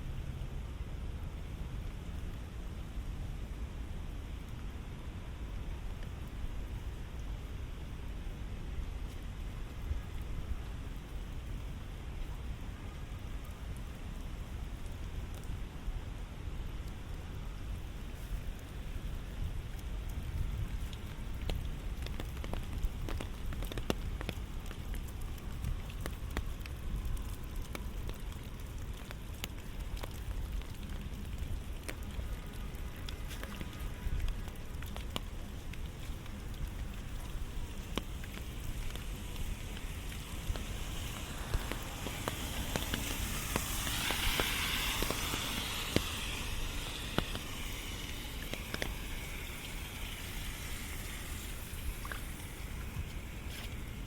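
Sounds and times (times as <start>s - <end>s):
steady rainfall: 0.0s - 54.0s
rushing hiss: 38.4s - 54.0s.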